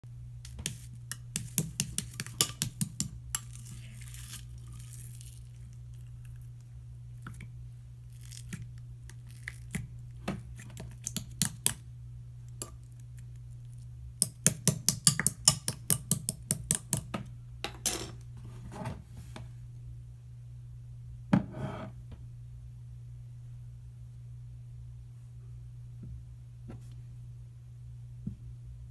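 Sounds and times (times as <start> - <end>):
steady low hum: 0.1 - 14.7, 15.4 - 28.9
short scraping: 21.4 - 22.0.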